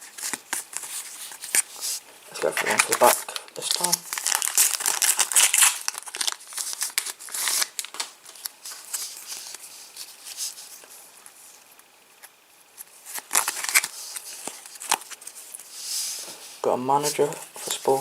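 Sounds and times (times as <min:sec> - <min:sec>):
wrapper crinkling: 0:00.0 - 0:10.9, 0:12.8 - 0:16.4
card packet tearing: 0:00.2 - 0:09.6, 0:13.1 - 0:15.2.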